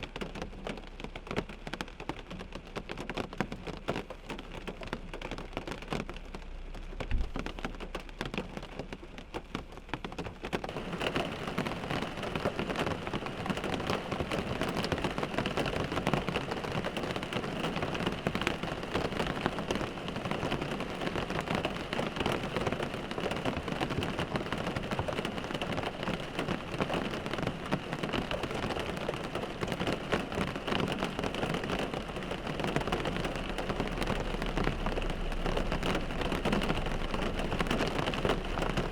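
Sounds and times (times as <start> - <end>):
rain on a car windshield: 0.0 - 38.9
low thump: 6.9 - 7.8.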